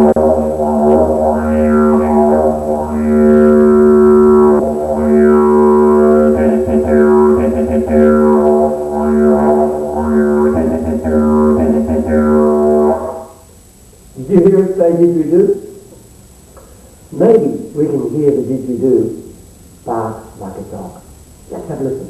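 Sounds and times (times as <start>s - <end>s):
didgeridoo drone: 0.0s - 13.5s.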